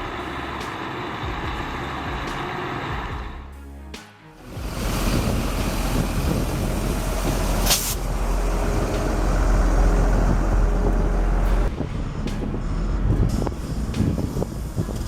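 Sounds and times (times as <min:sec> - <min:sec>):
heavy truck engine rumble: 0:00.0 - 0:03.5, 0:04.4 - 0:15.0
air hiss: 0:04.4 - 0:11.7.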